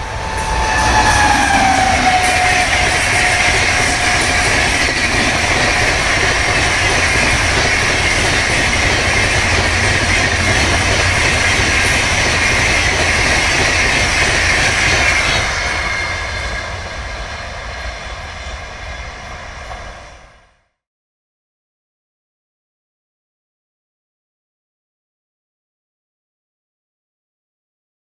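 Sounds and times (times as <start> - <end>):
train running at speed: 0.0 - 20.7.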